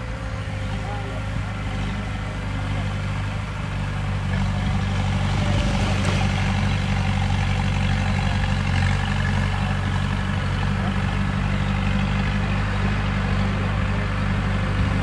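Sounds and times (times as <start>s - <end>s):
diesel construction machinery running: 0.0s - 15.0s.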